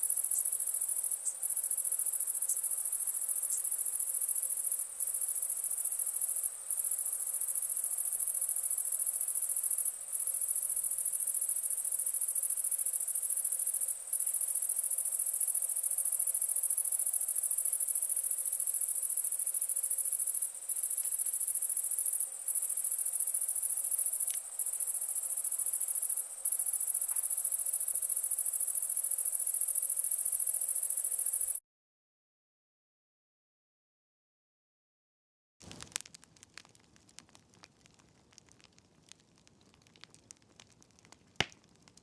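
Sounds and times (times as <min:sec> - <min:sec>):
crickets trilling: 0:00.0 - 0:31.6
faint campfire crackling: 0:00.0 - 0:31.6, 0:35.6 - 0:42.0.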